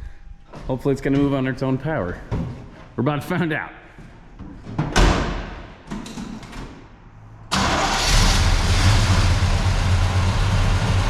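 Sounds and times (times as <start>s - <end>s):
truck engine running: 7.6s - 11.0s.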